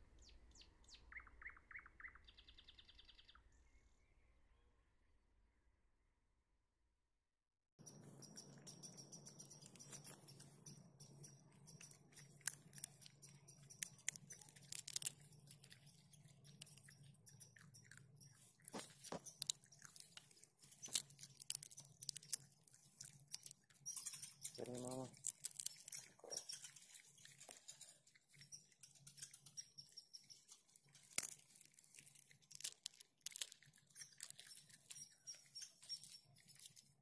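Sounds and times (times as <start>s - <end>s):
raccoon chewing peanut shells: 7.8s - 37.0s.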